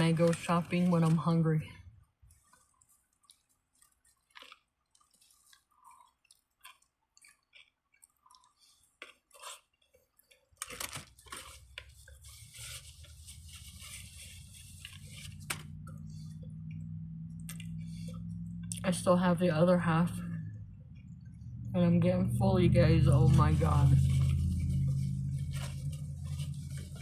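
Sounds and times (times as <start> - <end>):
chewing a sandwich: 2.0 - 18.8
rustling: 8.6 - 16.6, 23.1 - 27.0
low steady hum: 10.3 - 27.0.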